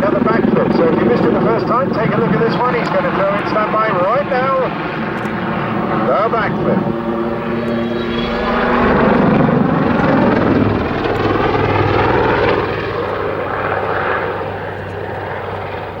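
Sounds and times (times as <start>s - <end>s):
helicopter rotor and turbine roar: 0.0s - 16.0s.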